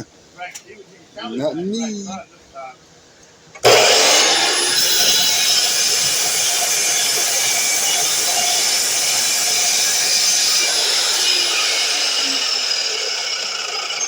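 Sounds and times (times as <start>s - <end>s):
miter saw whirring: 3.6s - 14.0s.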